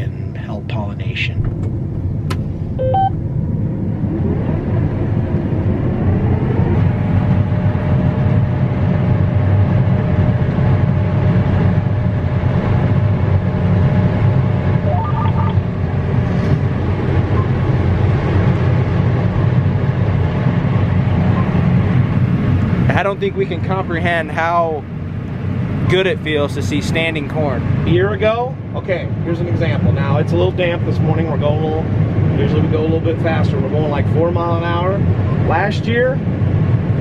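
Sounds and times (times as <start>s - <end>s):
combine harvester droning: 0.0s - 35.6s
faint short beeps: 2.8s - 3.2s, 14.9s - 15.6s.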